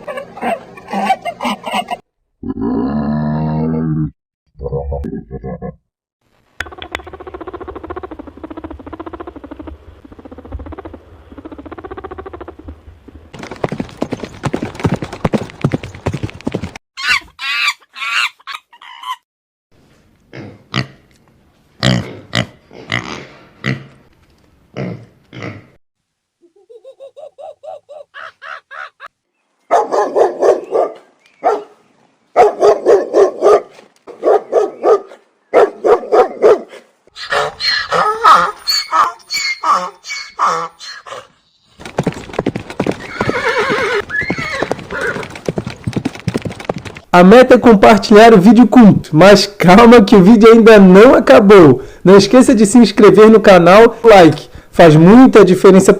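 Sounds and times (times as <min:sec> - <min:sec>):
steady pitched animal call: 0:06.6 - 0:12.9, 0:26.4 - 0:29.1, 0:37.1 - 0:41.4
pulsing noisy animal call: 0:06.7 - 0:12.8
dog barking: 0:29.7 - 0:31.8, 0:32.4 - 0:41.3.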